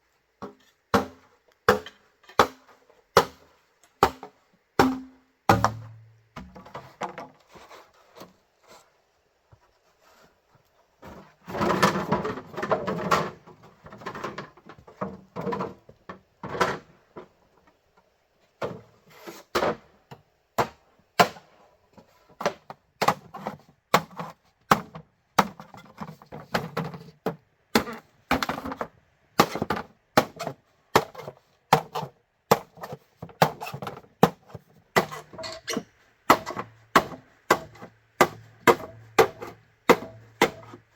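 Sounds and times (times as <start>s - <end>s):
tool knocking on bamboo: 4.8s - 6.5s
rustling and scraping: 5.7s - 19.8s, 21.9s - 36.9s.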